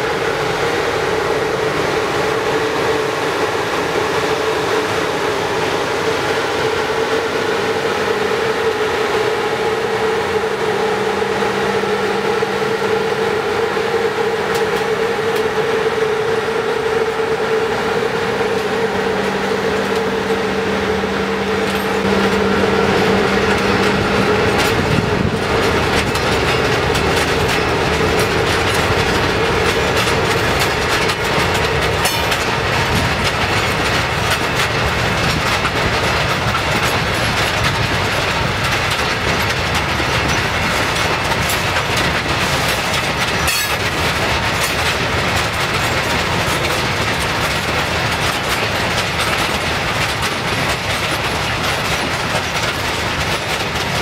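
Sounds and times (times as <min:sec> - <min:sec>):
freight train wheels clicking: 0:00.0 - 0:54.0.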